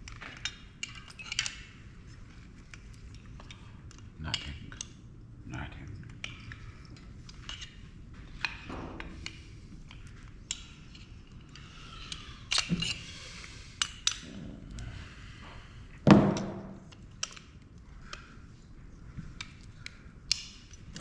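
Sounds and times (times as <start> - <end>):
ringing thunk: 16.1 - 16.8.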